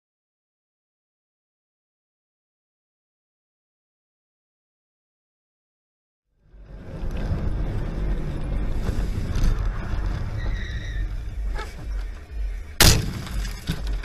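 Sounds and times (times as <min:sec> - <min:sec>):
car road and engine rumble: 0:06.3 - 0:14.0
loud collision bang: 0:12.8 - 0:14.0.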